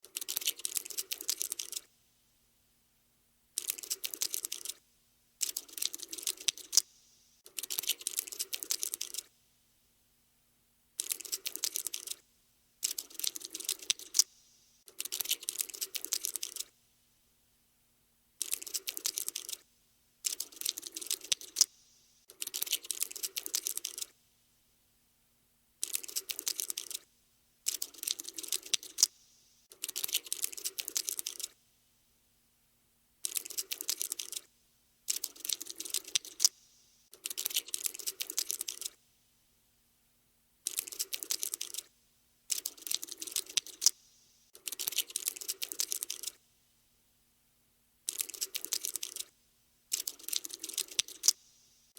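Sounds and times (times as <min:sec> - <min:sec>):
cockroach scuttling clicks: 0:00.0 - 0:01.9, 0:03.6 - 0:04.8, 0:05.4 - 0:09.3, 0:11.0 - 0:12.2, 0:12.8 - 0:16.7, 0:18.4 - 0:19.6, 0:20.2 - 0:21.7, 0:22.3 - 0:24.1, 0:25.8 - 0:27.0, 0:27.7 - 0:31.6, 0:33.2 - 0:34.5, 0:35.1 - 0:39.0, 0:40.6 - 0:41.9, 0:42.5 - 0:44.0, 0:44.6 - 0:46.4, 0:48.1 - 0:49.3, 0:49.9 - 0:51.4.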